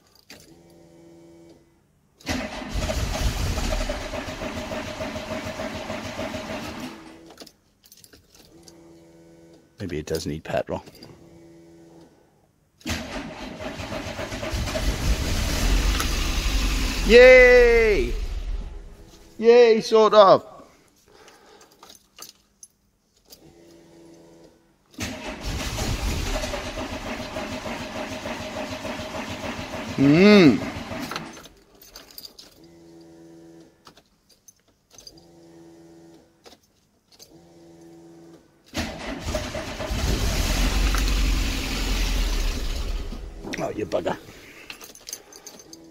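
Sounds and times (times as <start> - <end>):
electric fuel pump humming: 0.4 - 7.3, 11.1 - 12.2, 12.8 - 17.1, 35.1 - 36.4, 37.2 - 43.4
car engine cranking and starting: 2.2 - 7.5, 12.8 - 19.3, 24.9 - 31.6, 38.7 - 45.9.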